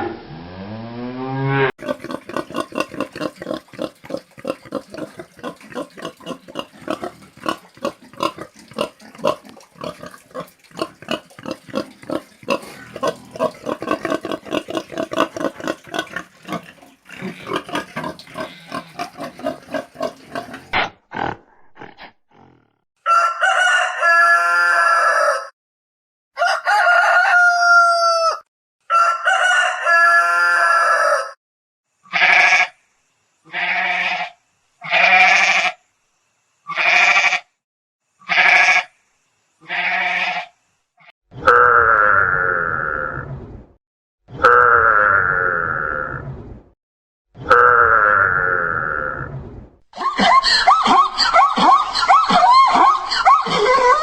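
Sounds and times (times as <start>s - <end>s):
rapid animal grunting: 1.8s - 22.8s
short bleats: 18.4s - 19.1s, 32.1s - 32.8s, 33.5s - 35.8s, 36.7s - 37.5s, 38.2s - 38.9s, 39.6s - 40.5s
rooster crowing: 23.0s - 25.5s, 26.4s - 31.4s.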